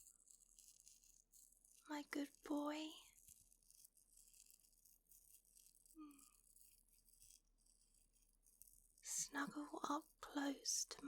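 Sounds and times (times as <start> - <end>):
soft head scratching: 0.0 - 11.0.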